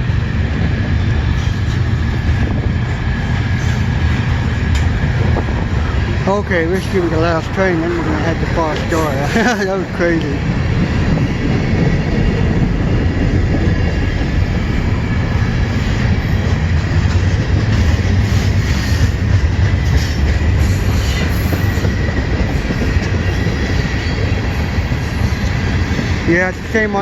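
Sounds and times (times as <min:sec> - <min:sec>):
freight train rumbling past: 0:00.0 - 0:27.0.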